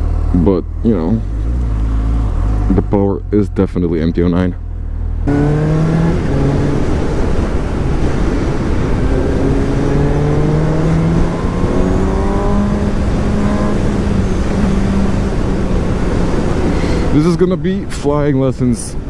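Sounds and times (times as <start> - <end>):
motorcycle engine accelerating: 0.0 - 17.3
heavy wind noise: 5.3 - 19.0.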